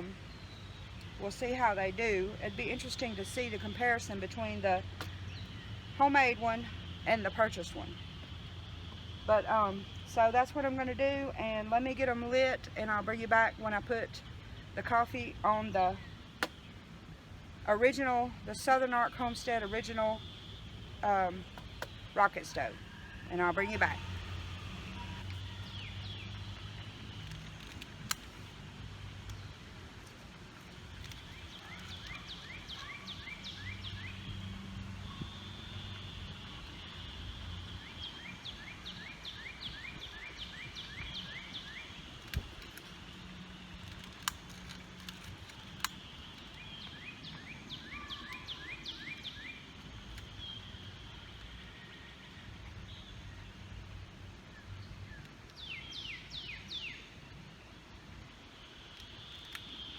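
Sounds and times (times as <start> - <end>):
songbird singing: 0.0 - 59.9
sharp clicks: 42.2 - 47.5.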